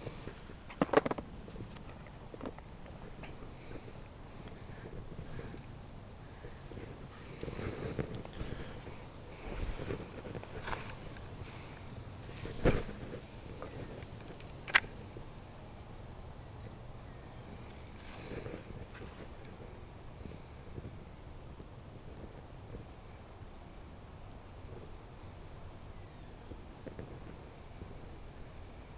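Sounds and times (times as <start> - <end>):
insects droning: 0.0 - 28.9
sharp click: 14.3 - 15.0.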